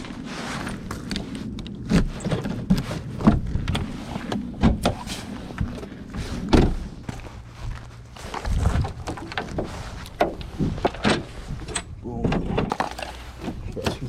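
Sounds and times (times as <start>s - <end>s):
knocks and clunks on car: 6.4s - 6.9s.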